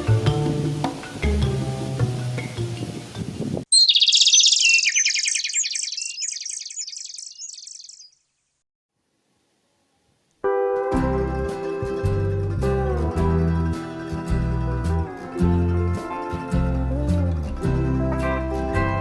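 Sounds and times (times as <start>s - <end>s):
bird trilling: 3.7s - 8.5s
guitar music: 10.5s - 19.0s.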